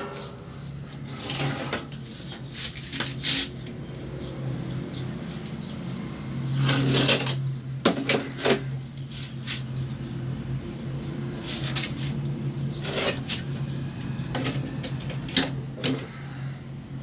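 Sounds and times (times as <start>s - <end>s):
steady low hum: 0.0s - 1.7s
hard parts clattering and scraping: 0.0s - 3.6s, 6.5s - 9.0s, 12.7s - 16.4s.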